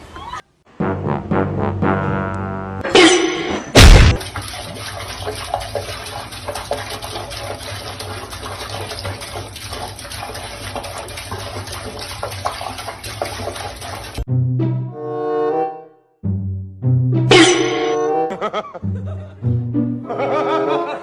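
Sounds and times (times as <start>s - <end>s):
loud burst: 3.8s - 4.2s
water running with splashes: 3.8s - 14.3s.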